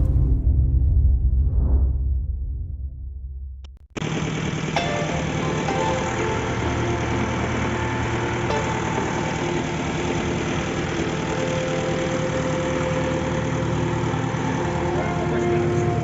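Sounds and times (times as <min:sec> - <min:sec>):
engine running steadily: 0:04.0 - 0:16.0.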